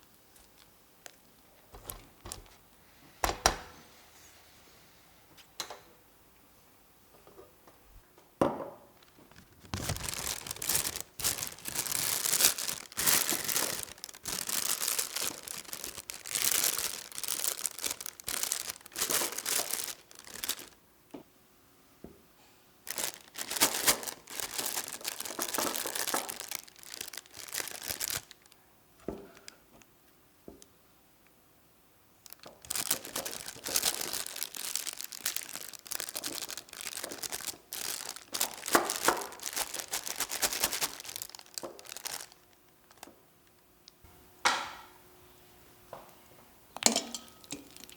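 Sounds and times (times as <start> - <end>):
plastic bag crinkling: 0.0 - 2.6, 9.0 - 20.8, 22.8 - 28.6, 32.2 - 43.7, 47.1 - 47.9.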